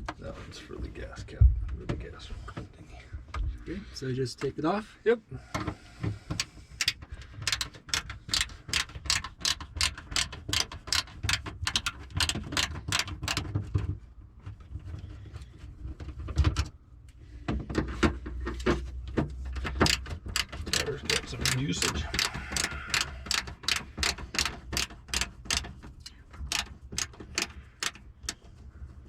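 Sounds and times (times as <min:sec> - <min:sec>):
ratcheting hand tool clicking: 0:06.3 - 0:13.5, 0:19.6 - 0:28.5.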